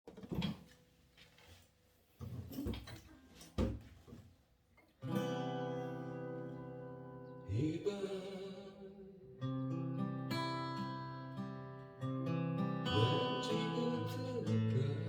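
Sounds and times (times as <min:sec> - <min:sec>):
acoustic guitar chord strummed: 0:05.0 - 0:15.0.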